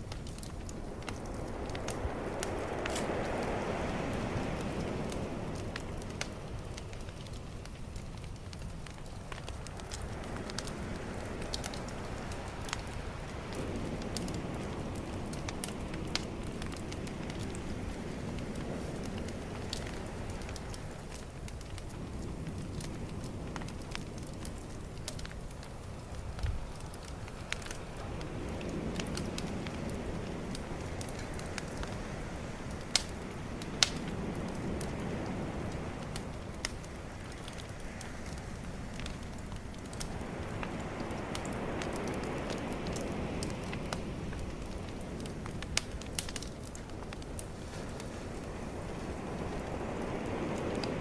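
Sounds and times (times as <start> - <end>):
bonfire crackling and popping: 0.0 - 51.0
calm ocean waves: 0.0 - 51.0.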